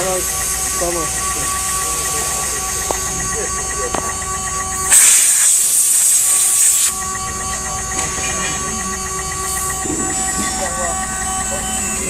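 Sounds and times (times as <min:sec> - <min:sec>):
cnc router whine: 0:00.0 - 0:12.0
loud hiss: 0:04.9 - 0:07.0.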